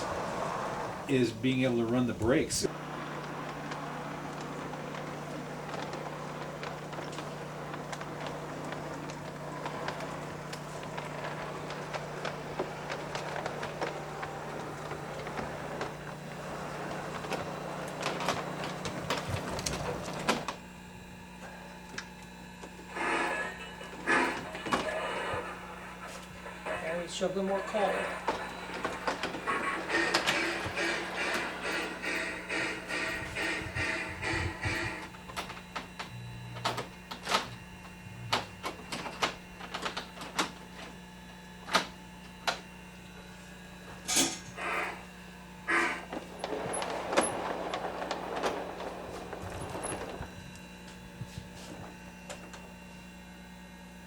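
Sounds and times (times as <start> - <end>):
model train rumbling on track: 0.0 - 20.5, 22.9 - 35.9, 45.7 - 50.4
wheels clicking on rail joints: 0.0 - 20.5, 26.8 - 41.0, 45.7 - 50.9
steady hum: 0.0 - 54.0
model train clicks and knocks: 28.3 - 36.1.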